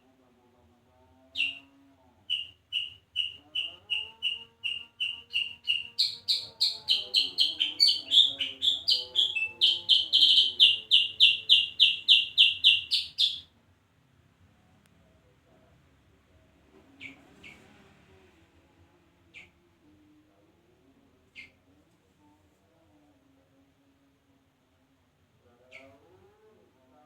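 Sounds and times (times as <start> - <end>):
songbird chirping: 1.2 - 13.5, 16.8 - 17.8, 19.3 - 20.2, 25.5 - 26.4.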